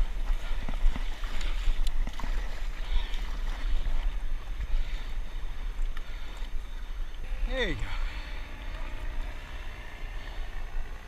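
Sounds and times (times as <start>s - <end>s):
water lapping against paddleboard: 0.0s - 11.0s.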